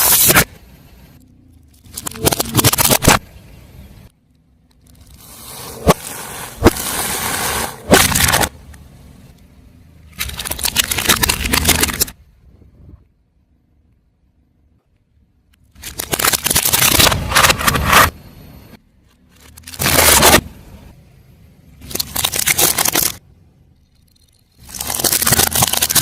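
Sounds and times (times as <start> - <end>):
objects crunching under car tyre: 4.8 - 8.6, 10.1 - 12.2, 15.8 - 18.2, 19.2 - 20.6, 21.8 - 23.2, 24.5 - 26.0.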